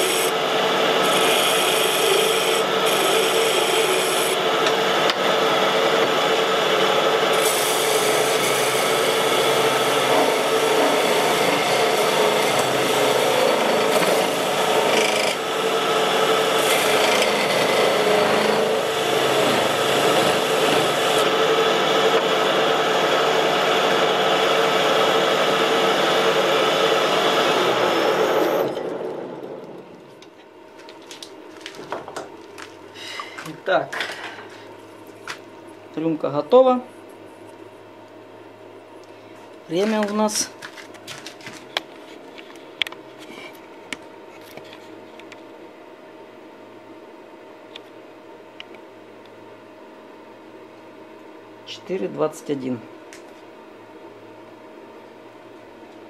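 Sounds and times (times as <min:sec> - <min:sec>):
wood lathe tool rasping: 0:00.0 - 0:28.7
lathe motor hum: 0:00.0 - 0:30.0.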